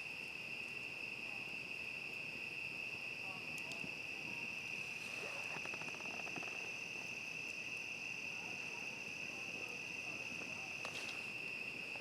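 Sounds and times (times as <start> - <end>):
cricket chorus trilling: 0.0 - 12.0
faint crackles: 3.5 - 7.9, 8.5 - 12.0.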